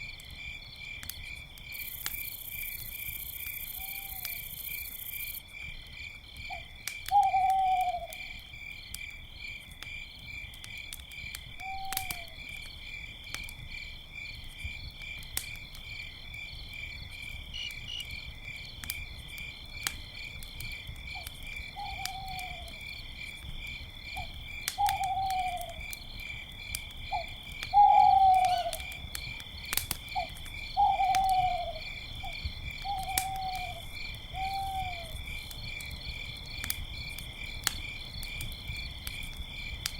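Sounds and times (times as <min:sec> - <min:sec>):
campfire crackling: 0:00.0 - 0:39.9
crickets chirping: 0:00.0 - 0:39.9
owl hooting: 0:03.8 - 0:04.3, 0:07.1 - 0:08.2, 0:21.8 - 0:22.7, 0:24.8 - 0:25.8, 0:27.1 - 0:28.8, 0:30.2 - 0:31.8, 0:32.9 - 0:33.8, 0:34.4 - 0:35.2.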